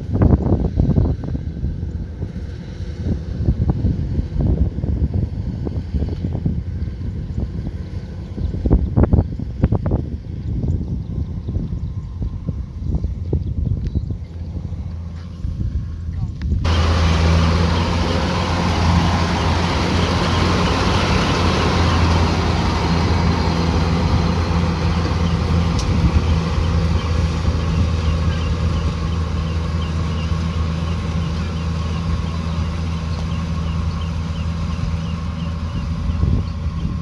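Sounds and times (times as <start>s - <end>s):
diesel engine droning: 14.2s - 37.0s
machinery noise: 16.7s - 37.0s.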